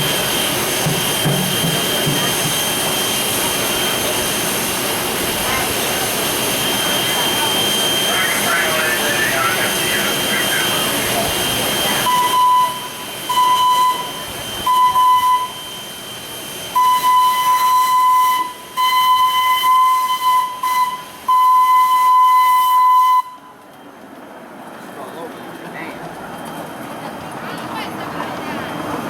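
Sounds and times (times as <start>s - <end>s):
steam hissing: 0.0s - 21.5s
steam locomotive whistle blasts: 6.6s - 23.6s.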